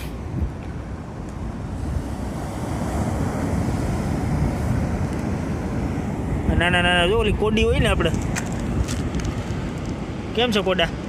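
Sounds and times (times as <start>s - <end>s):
sea waves washing on shore: 0.0s - 11.0s
wind buffeting microphone: 0.0s - 11.0s.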